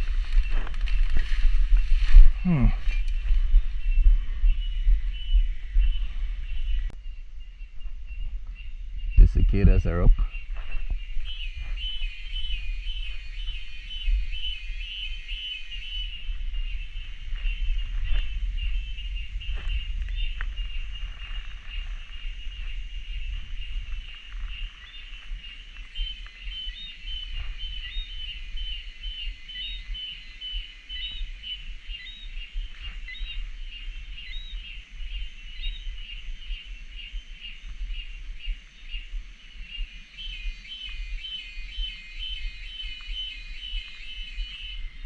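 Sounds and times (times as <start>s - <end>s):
low rumble: 0.0s - 25.8s
cicadas buzzing: 0.0s - 45.0s.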